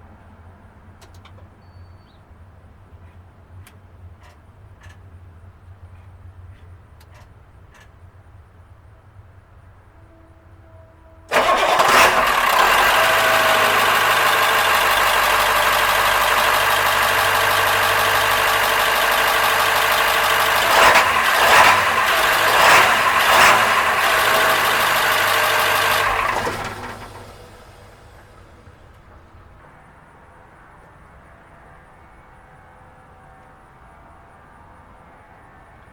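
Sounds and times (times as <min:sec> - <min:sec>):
diesel engine starting and running: 0:11.3 - 0:30.3.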